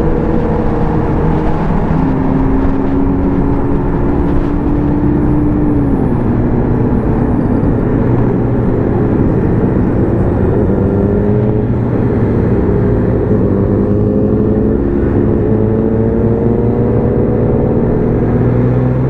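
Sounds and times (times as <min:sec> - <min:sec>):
motorcycle engine: 0:00.0 - 0:19.0
wind and road rush: 0:00.0 - 0:19.0.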